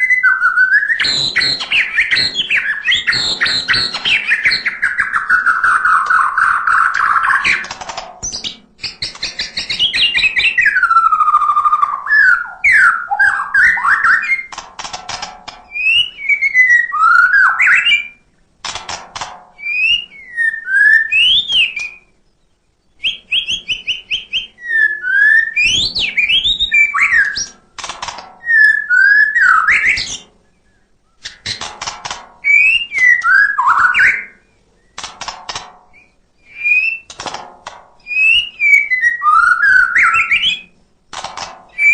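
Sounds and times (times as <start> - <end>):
bird singing whistled phrases: 0.0 - 7.6, 8.2 - 14.5, 15.7 - 18.2, 19.6 - 22.2, 22.9 - 27.5, 28.4 - 31.2, 32.4 - 35.0, 36.0 - 37.1, 38.1 - 40.7
bird clicking trills: 0.0 - 22.1, 23.0 - 30.4, 31.2 - 41.9.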